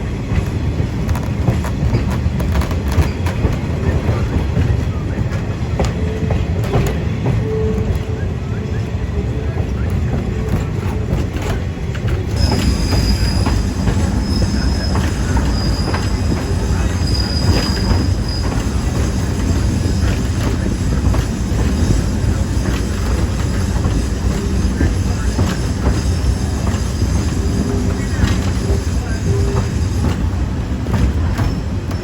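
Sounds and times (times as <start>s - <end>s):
train rumbling on track: 0.0s - 32.0s
train wheels squealing: 12.2s - 32.0s.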